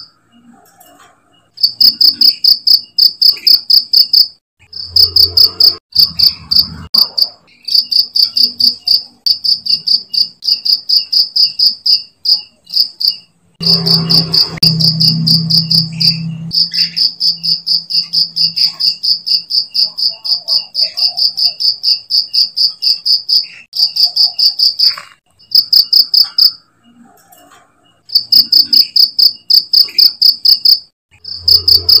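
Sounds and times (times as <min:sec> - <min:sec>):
cricket chirping: 0:01.6 - 0:26.6, 0:28.1 - 0:32.0.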